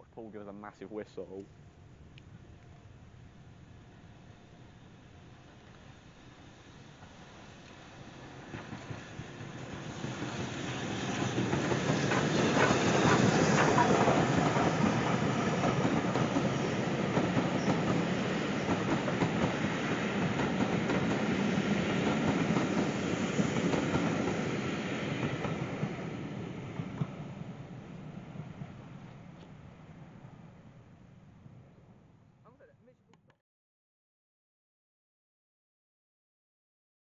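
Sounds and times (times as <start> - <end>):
steam train passing: 0.0 - 31.5.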